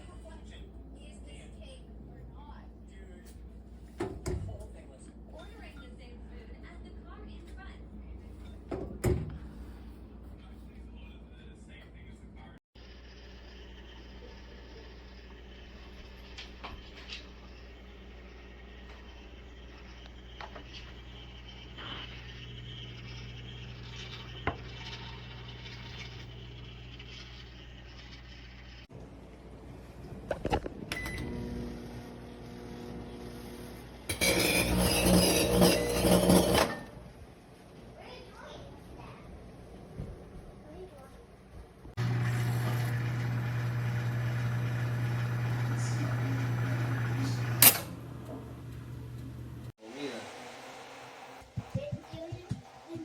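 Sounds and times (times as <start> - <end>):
microwave oven humming: 12.8 - 30.1, 30.8 - 37.2, 42.0 - 49.7.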